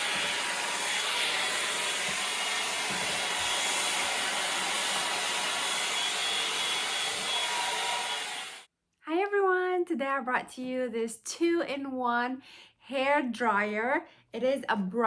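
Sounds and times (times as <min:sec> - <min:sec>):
hair dryer blowing air: 0:00.0 - 0:08.7.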